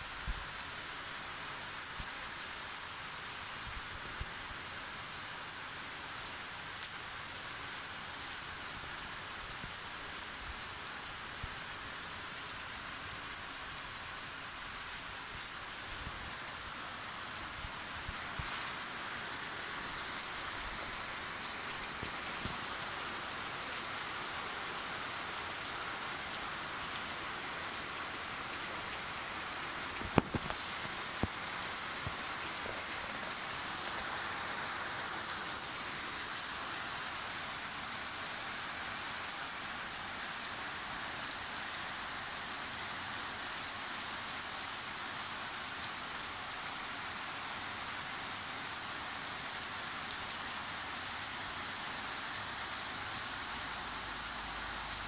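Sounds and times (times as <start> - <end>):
steady rain hiss: 0.0 - 55.0
raindrop ticking close by: 29.9 - 33.5.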